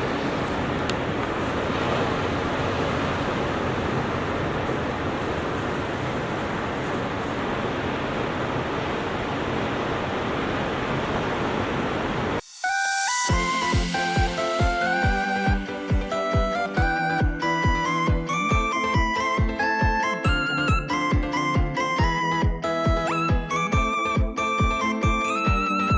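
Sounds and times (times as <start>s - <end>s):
ocean surf washing onto beach: 0.0s - 12.4s.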